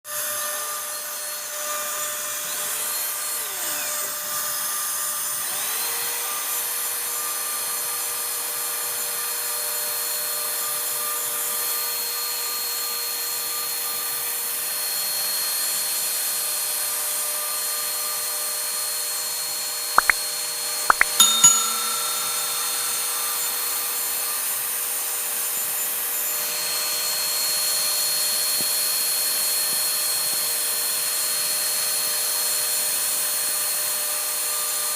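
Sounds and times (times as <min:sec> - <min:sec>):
sharp clicks: 0:20.0 - 0:20.2.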